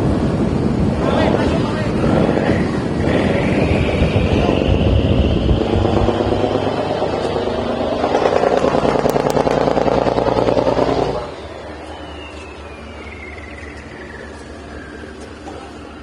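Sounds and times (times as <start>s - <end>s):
boat engine running hard: 0.0s - 12.3s.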